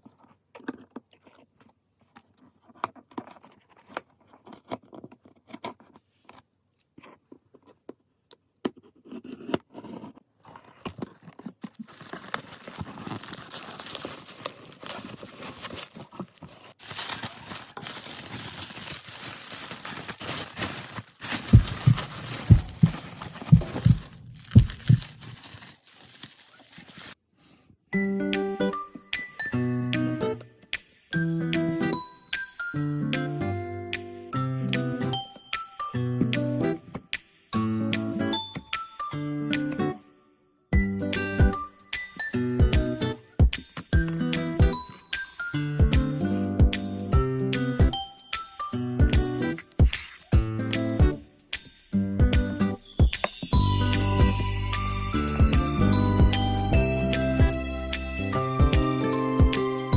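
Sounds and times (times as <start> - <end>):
plastic wrap crinkling and tearing: 10.7 - 27.2
dull thumps: 21.2 - 25.4.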